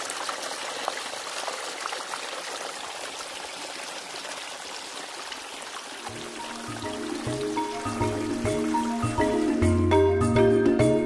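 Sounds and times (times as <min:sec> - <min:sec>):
water trickling over rocks: 0:00.0 - 0:09.8.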